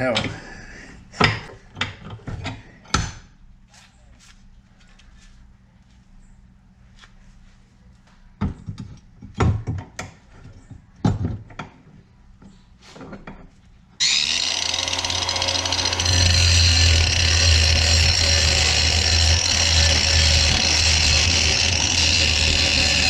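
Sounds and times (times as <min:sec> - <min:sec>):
power tool running: 0:14.0 - 0:23.0.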